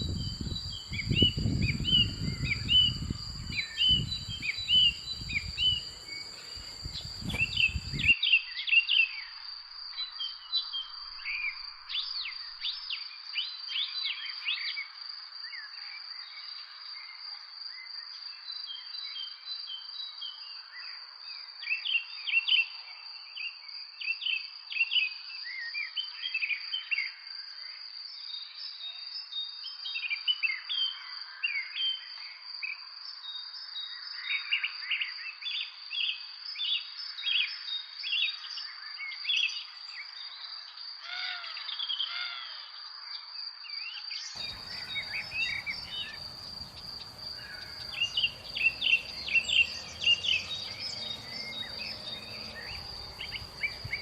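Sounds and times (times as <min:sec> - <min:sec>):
small birds chirping: 0:00.0 - 0:08.2, 0:44.4 - 0:54.0
high-pitched insect drone: 0:44.4 - 0:54.0
low background rumble: 0:44.4 - 0:54.0.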